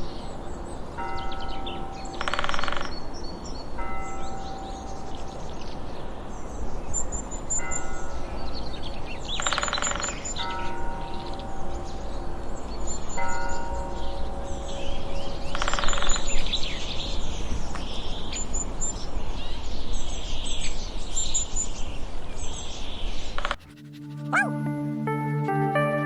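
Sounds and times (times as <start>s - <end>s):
birds chirping: 23.6s - 24.5s.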